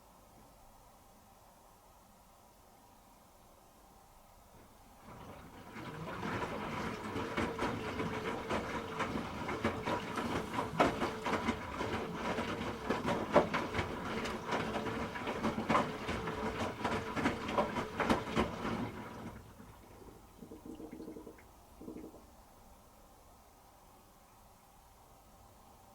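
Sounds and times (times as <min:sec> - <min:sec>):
washing machine motor hum: 0:04.6 - 0:22.4.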